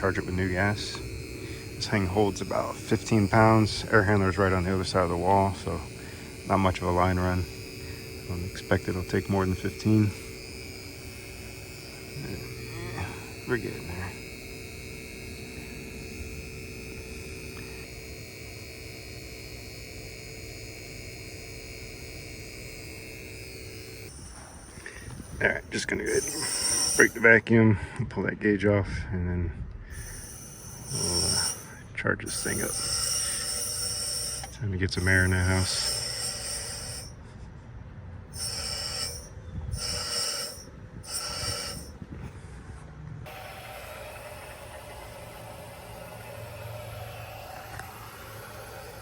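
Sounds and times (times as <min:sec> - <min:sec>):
refrigerant gas hissing: 0:00.0 - 0:27.4, 0:29.9 - 0:37.2, 0:38.3 - 0:42.0
vacuum pump humming and whining: 0:00.0 - 0:27.6, 0:29.9 - 0:37.6, 0:38.2 - 0:42.6, 0:43.2 - 0:49.0.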